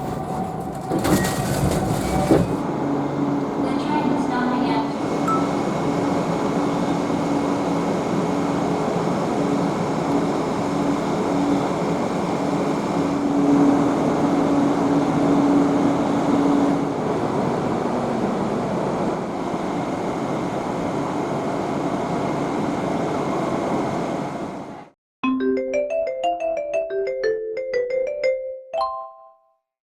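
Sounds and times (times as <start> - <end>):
train rumble and rail noise: 0.0 - 25.0
marimba-like tune: 25.2 - 29.4.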